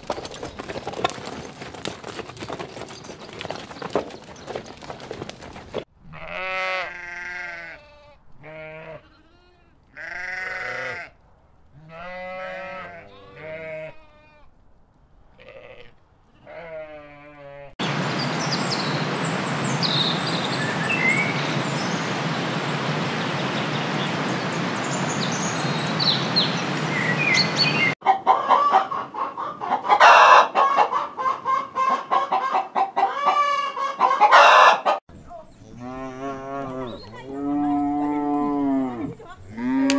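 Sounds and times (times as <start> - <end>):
sheep bleating: 6.0 - 11.2, 11.8 - 14.5, 15.4 - 17.8
small birds chirping: 17.9 - 28.0, 35.1 - 38.0
chickens clucking and squawking: 27.4 - 35.0.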